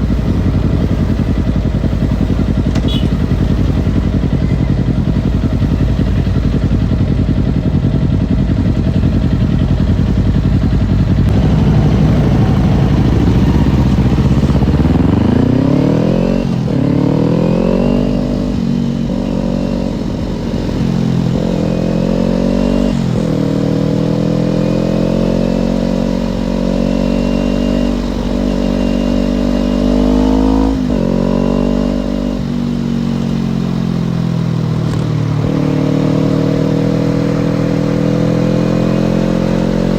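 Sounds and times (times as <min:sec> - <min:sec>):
heavy rushing rumble: 0:00.0 - 0:21.7
motorcycle engine revving: 0:00.0 - 0:39.9.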